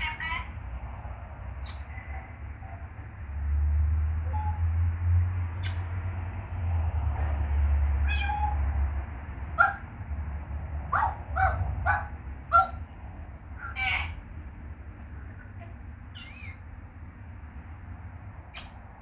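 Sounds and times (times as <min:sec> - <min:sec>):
parrot calls: 0:00.0 - 0:00.6, 0:04.2 - 0:04.7, 0:08.0 - 0:08.7, 0:09.6 - 0:09.9, 0:10.9 - 0:12.9, 0:13.6 - 0:14.2, 0:16.1 - 0:16.6.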